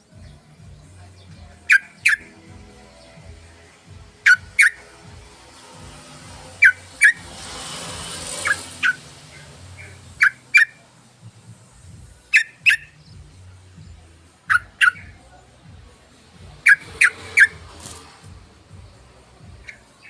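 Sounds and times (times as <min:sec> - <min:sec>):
bird calling sharp notes: 0:01.6 - 0:02.4, 0:04.1 - 0:04.9, 0:06.4 - 0:10.8, 0:12.2 - 0:13.0, 0:14.4 - 0:15.2, 0:16.6 - 0:18.2.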